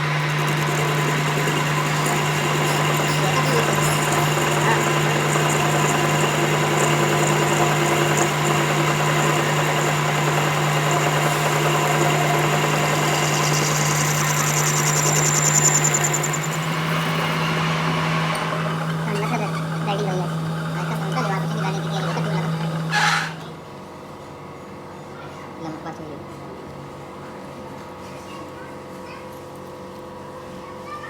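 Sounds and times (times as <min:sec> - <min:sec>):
fast high-pitched rattle: 0:00.0 - 0:17.5
workshop machine humming: 0:00.0 - 0:28.6.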